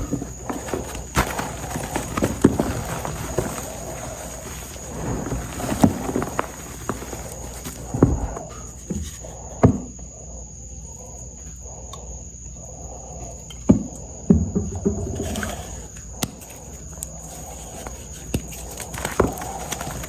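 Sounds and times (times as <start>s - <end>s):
chalk crumbling: 0.0s - 9.0s, 15.2s - 20.0s.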